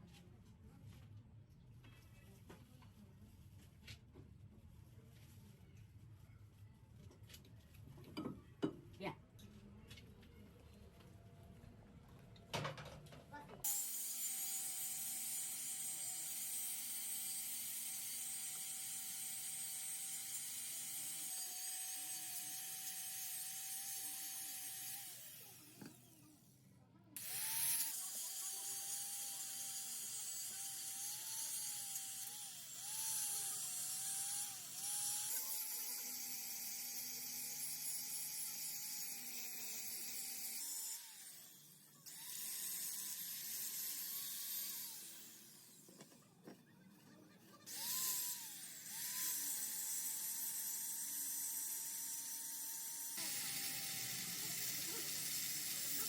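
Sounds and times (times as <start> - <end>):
power tool motor whining: 13.7 - 26.4, 27.2 - 46.2, 47.7 - 56.0.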